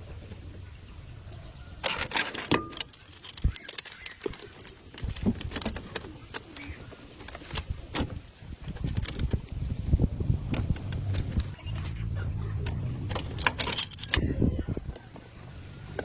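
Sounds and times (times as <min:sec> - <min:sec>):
metal tools clinking and knocking: 0:01.8 - 0:09.4, 0:12.6 - 0:14.3.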